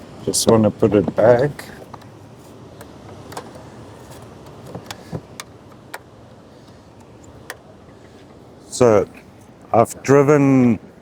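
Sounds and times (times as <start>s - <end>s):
low steady hum: 0.0s - 11.0s
plastic parts clicking and knocking: 2.8s - 6.1s.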